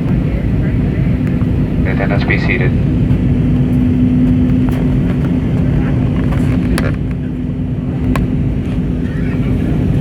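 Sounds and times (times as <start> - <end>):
airplane cabin engine rumble: 0.0 - 10.0
constant low hum: 0.0 - 10.0.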